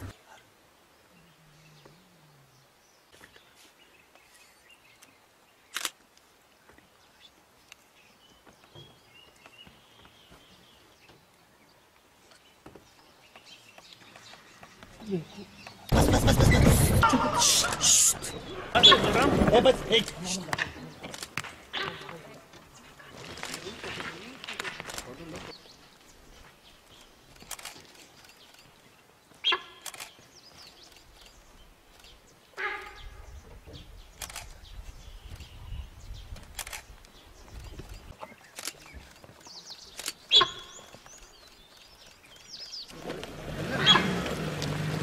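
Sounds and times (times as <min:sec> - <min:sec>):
birds chirping: 0:00.0 - 0:45.0
high bird call: 0:40.3 - 0:41.0
loud animal call: 0:43.6 - 0:44.3.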